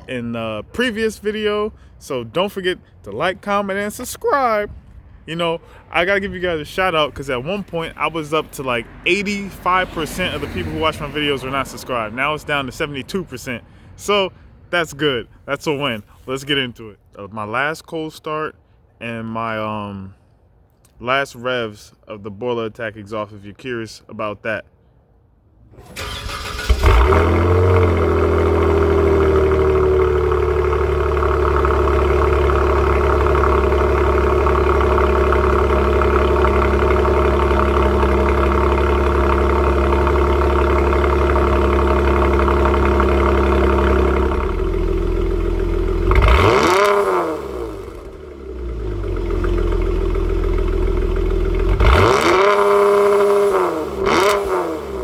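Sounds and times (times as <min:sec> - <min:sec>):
car engine idling: 0:00.0 - 0:13.9, 0:25.8 - 0:55.0
car engine starting: 0:00.0 - 0:16.4, 0:25.7 - 0:55.0
car engine revving: 0:04.8 - 0:13.0, 0:25.9 - 0:55.0.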